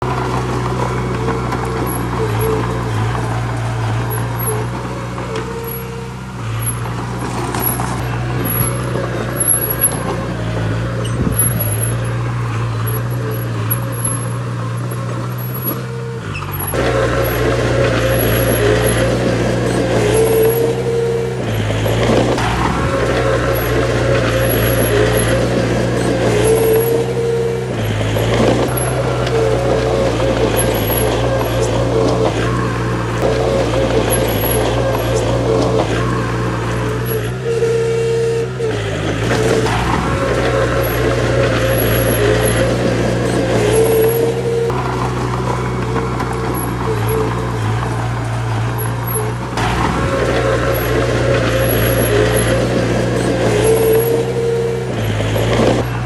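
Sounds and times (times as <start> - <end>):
diesel machinery engine revving: 0.0 - 56.0.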